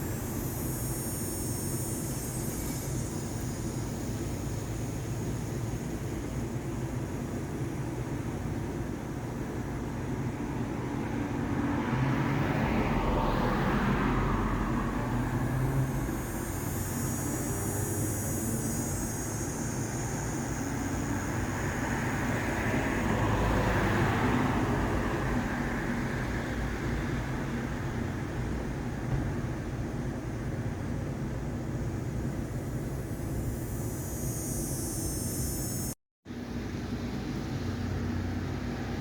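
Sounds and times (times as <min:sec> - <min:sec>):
road traffic rumble: 0:00.0 - 0:39.0
vehicle passing by: 0:10.8 - 0:27.8.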